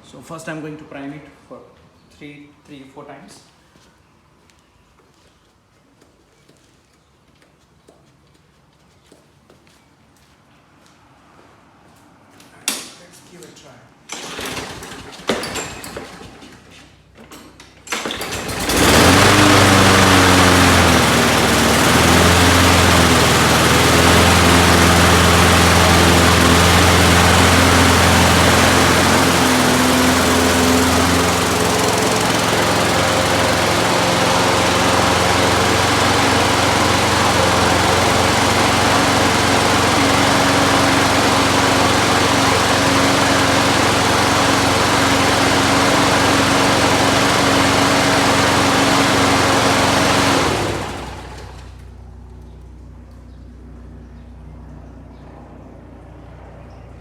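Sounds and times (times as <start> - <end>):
lawn mower engine running: 14.1 - 53.7.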